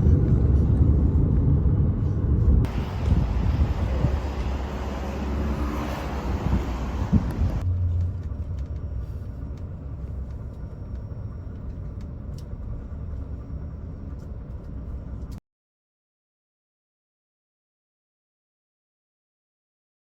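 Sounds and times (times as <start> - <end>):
wind noise: 0.0 - 7.6
bus rumbling from inside: 0.0 - 15.4.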